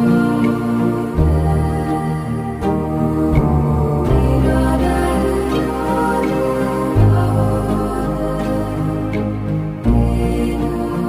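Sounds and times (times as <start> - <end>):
slow new-age instrumental music: 0.0 - 11.0.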